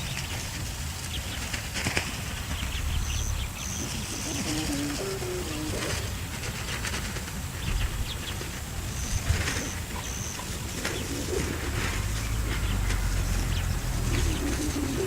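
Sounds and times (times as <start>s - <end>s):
wind rumbling on microphone: 0.0s - 15.0s
dove cooing: 1.8s - 15.0s
bird chirping: 2.1s - 6.4s, 7.6s - 15.0s.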